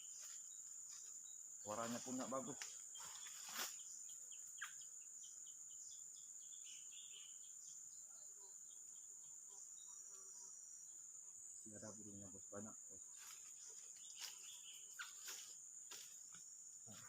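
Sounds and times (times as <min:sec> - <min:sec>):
bird chirps: 0:00.0 - 0:11.1, 0:13.0 - 0:15.6
insects droning: 0:00.0 - 0:17.0.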